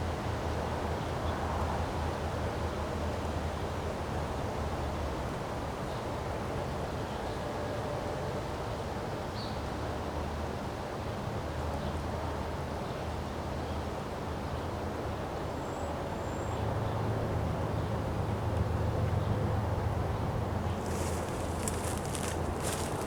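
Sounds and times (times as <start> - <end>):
wind blowing: 20.8 - 23.0.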